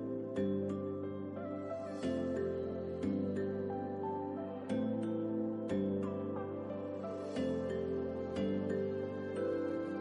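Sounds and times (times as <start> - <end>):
soft slow plucked music: 0.0 - 10.0.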